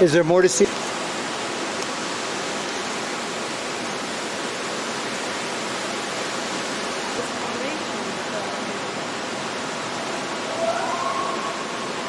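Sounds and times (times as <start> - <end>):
fast-flowing water rushing: 0.0 - 12.0.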